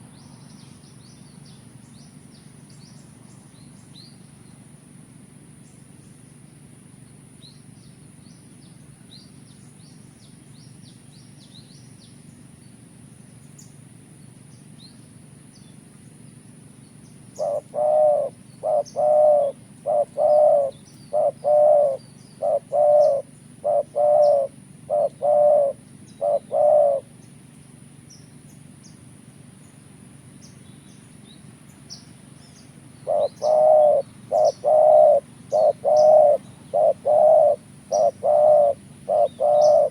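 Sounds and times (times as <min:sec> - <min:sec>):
small birds chirping: 0:00.0 - 0:04.7, 0:05.6 - 0:39.9
dove cooing: 0:17.3 - 0:27.2, 0:32.9 - 0:39.9.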